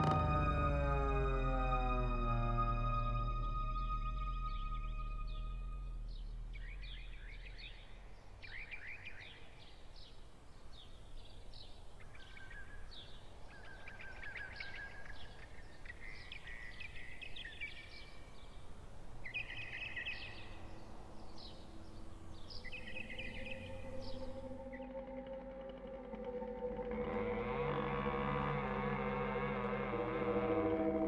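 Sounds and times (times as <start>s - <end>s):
low steady rumble: 0.0s - 8.4s
birds chirping and trilling: 0.0s - 31.0s.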